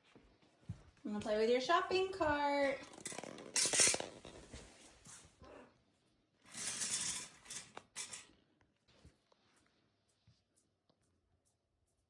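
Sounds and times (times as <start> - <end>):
toy cart rattling: 2.8 - 4.7, 6.5 - 8.4.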